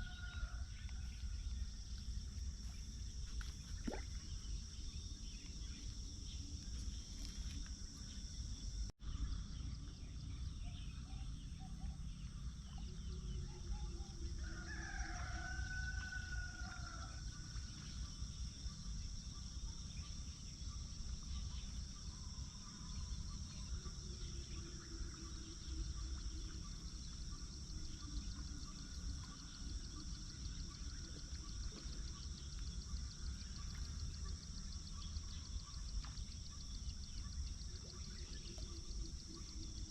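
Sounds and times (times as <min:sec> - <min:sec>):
high insect drone: 0:00.0 - 0:39.9
rooster crowing: 0:14.4 - 0:17.2.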